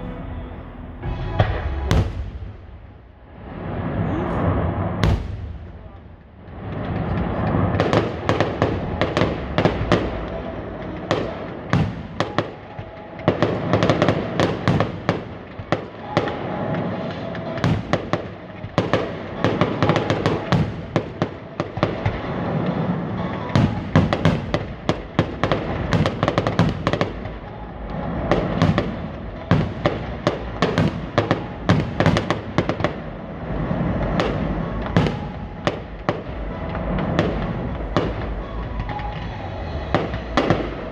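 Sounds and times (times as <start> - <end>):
low rumble: 0.0 - 11.5, 32.4 - 40.9
fireworks bangs and crackles: 0.0 - 40.9.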